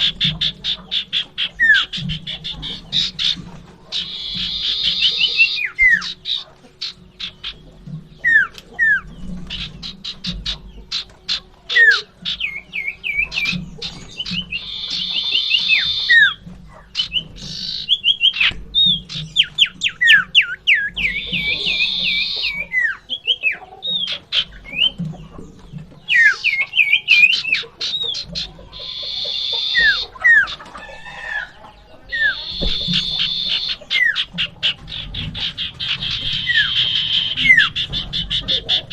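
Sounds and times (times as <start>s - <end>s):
bird harsh buzzing rasps: 0.0s - 25.2s, 26.1s - 31.5s, 32.1s - 38.9s
bird quick whistles and ticking: 8.2s - 30.6s, 32.1s - 38.9s.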